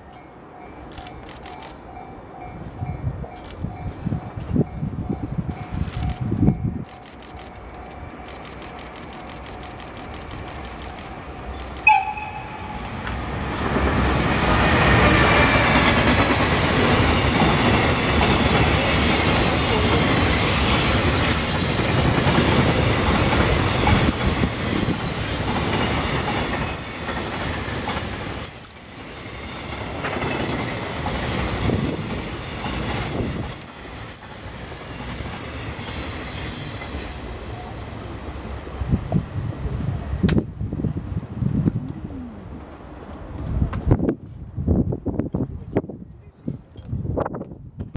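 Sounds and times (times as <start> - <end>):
train horn toot: 11.8 - 13.1.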